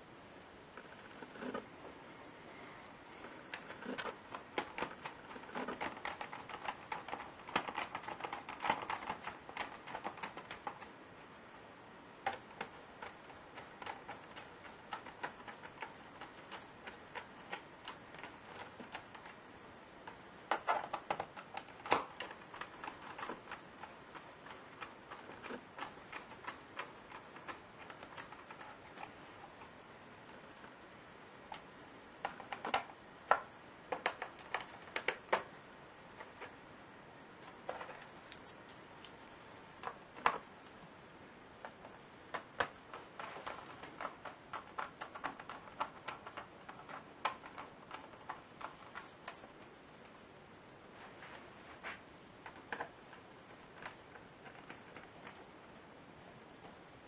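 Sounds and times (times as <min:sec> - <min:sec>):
clicks and taps on laptop plastic: 0:03.6 - 0:10.9, 0:12.2 - 0:19.4, 0:20.1 - 0:29.6, 0:31.5 - 0:35.6, 0:41.6 - 0:49.6.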